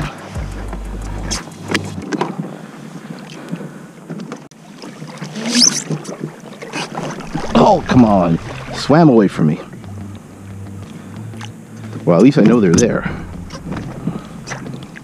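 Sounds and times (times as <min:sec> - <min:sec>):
water splashing and dripping: 0:04.8 - 0:12.2, 0:12.8 - 0:15.0.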